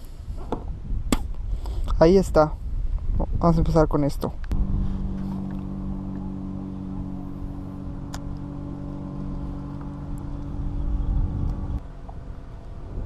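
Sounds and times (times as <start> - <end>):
wind and water rumble: 0.0 - 13.0
motorboat engine humming: 4.5 - 13.0.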